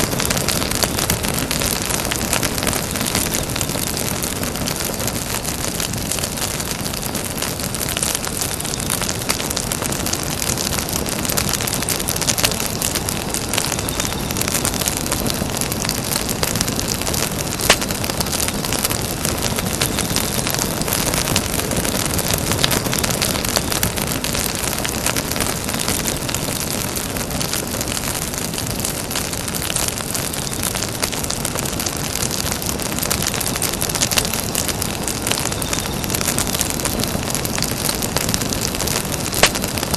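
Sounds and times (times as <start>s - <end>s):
campfire crackling and hissing: 0.0s - 39.9s
sharp fire pop: 38.9s - 39.9s.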